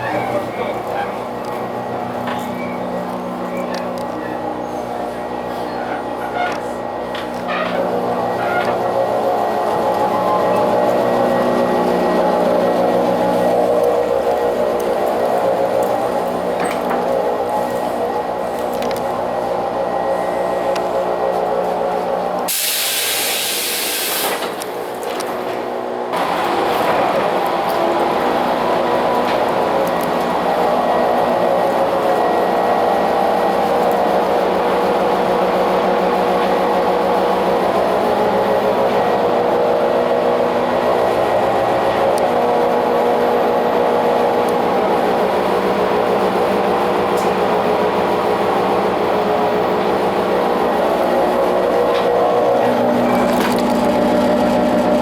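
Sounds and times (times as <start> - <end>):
motor generator humming: 26.1 - 55.0.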